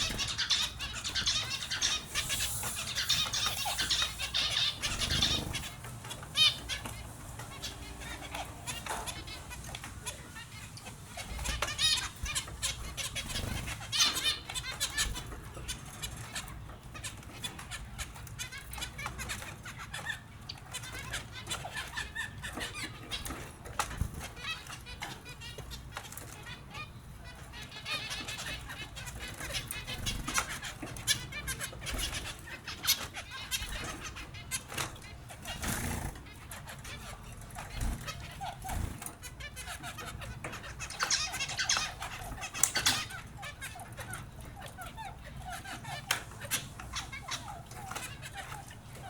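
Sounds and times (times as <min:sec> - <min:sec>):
wings flapping: 0:00.0 - 0:06.9, 0:34.8 - 0:36.4
finches chirping: 0:00.0 - 0:49.0.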